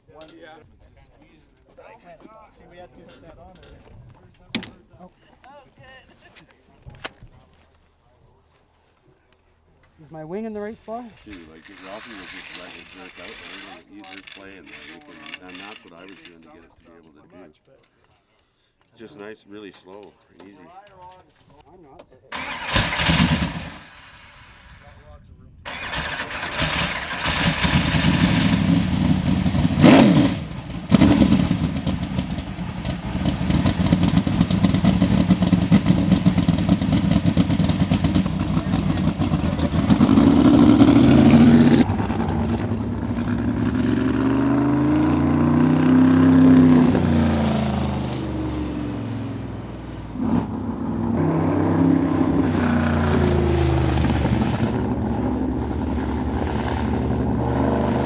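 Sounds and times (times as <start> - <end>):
race car engine revving: 22.3 - 25.0, 25.7 - 58.0.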